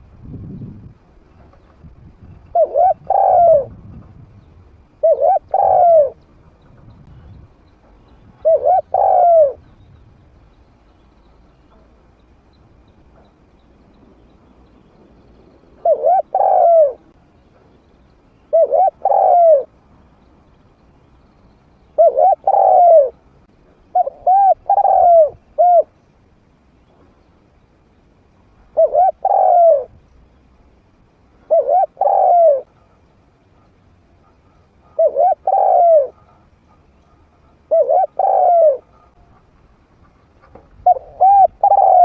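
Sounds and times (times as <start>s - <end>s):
dove cooing: 2.4s - 3.8s, 5.0s - 6.2s, 8.4s - 9.7s, 15.8s - 17.2s, 18.5s - 19.8s, 22.0s - 23.2s, 23.9s - 26.0s, 28.7s - 30.0s, 31.4s - 39.6s, 40.8s - 42.0s.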